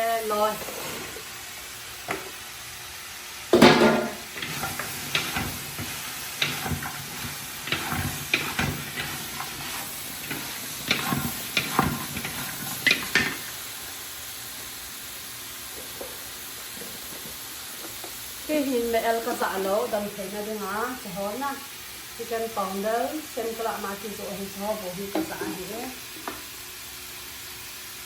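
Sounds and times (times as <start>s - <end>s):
vegetables sizzling: 0.0s - 28.0s
spatula scraping a pan: 3.6s - 13.5s.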